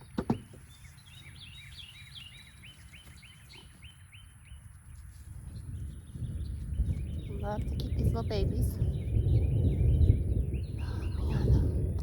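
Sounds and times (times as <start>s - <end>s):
songbird singing: 0.0s - 12.0s
steady low rumble: 5.3s - 12.0s.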